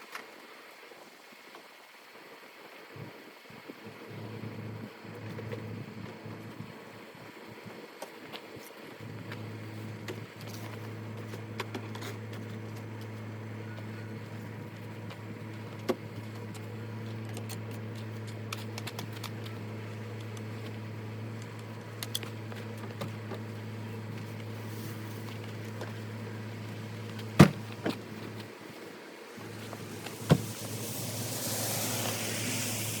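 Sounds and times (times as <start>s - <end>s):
car engine humming: 17.8s - 33.0s
hiss: 29.4s - 33.0s.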